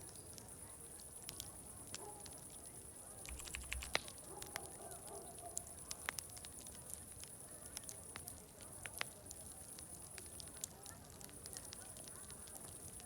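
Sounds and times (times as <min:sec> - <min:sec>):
wood fire crackling: 0:00.0 - 0:13.0
distant crowd chatter: 0:06.8 - 0:13.0.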